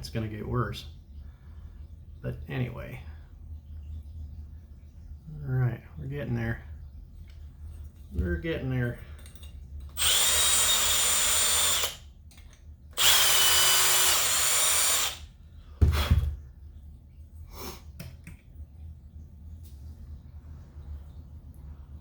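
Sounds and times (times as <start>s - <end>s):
electric drill whining: 10.0s - 12.0s, 13.0s - 15.3s
heavy thud: 15.8s - 16.4s.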